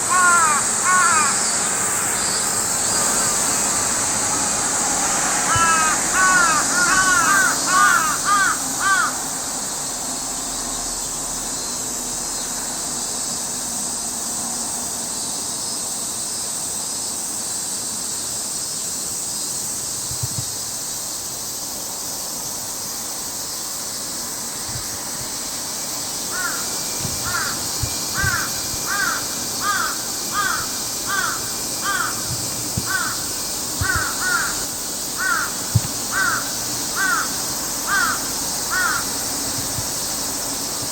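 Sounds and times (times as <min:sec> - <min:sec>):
bird calling harshly: 0:00.0 - 0:02.4, 0:05.5 - 0:09.2, 0:26.3 - 0:39.2
steady high hiss: 0:00.0 - 0:40.9.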